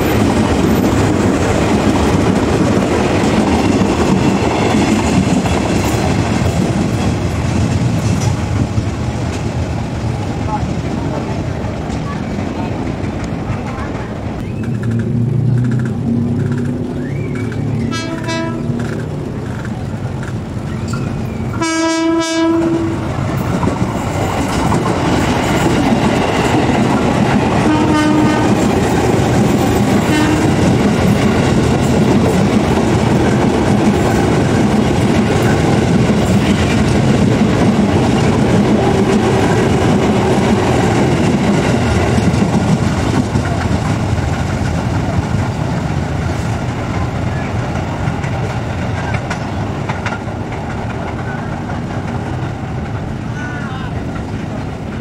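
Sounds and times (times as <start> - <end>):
train wheels clattering over joints: 0.0 - 9.6, 23.2 - 53.4
train horn blasts: 17.8 - 18.8, 21.6 - 23.0, 27.6 - 28.7, 30.0 - 30.6.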